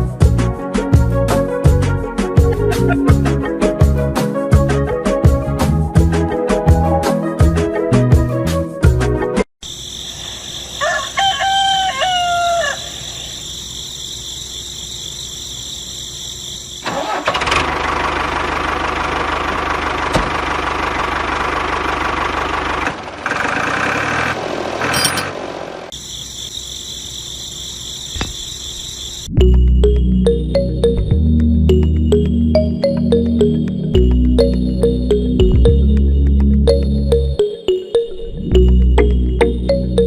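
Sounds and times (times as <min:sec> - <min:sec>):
rooster crowing: 0:10.5 - 0:13.4
steady mechanical engine noise: 0:15.6 - 0:26.0.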